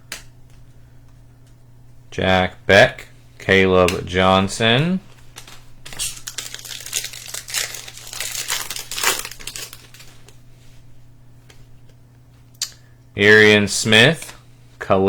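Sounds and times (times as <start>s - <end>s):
foil wrapper crinkling and tearing: 5.3s - 10.4s.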